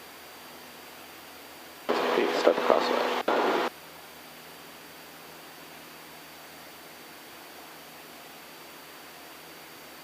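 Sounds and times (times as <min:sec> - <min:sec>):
faint airplane engine drone: 0:00.0 - 0:10.0
headset intercom hiss: 0:01.9 - 0:03.7.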